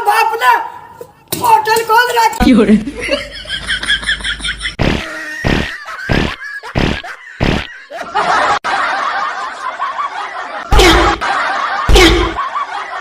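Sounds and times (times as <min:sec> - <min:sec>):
crowd laughing and snickering: 0:02.9 - 0:13.0.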